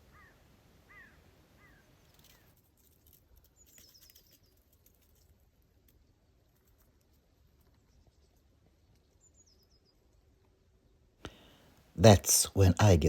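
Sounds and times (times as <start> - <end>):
rustling and crackling in reeds: 2.0 - 7.8.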